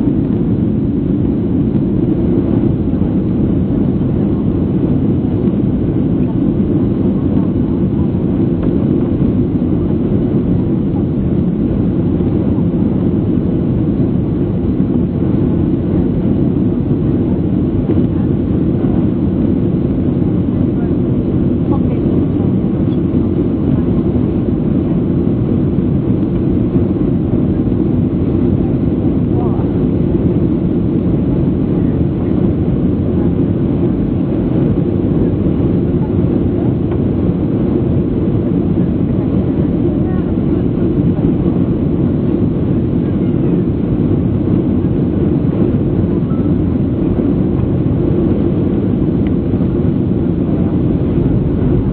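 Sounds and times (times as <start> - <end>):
jet engine roar in cabin: 0.0 - 51.9.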